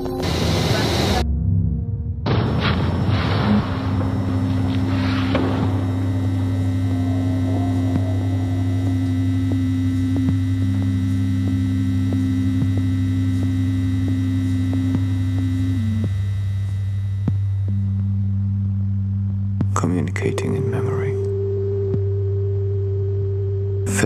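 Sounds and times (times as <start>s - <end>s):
steady low hum: 0.0s - 24.0s
held tones: 2.3s - 24.0s.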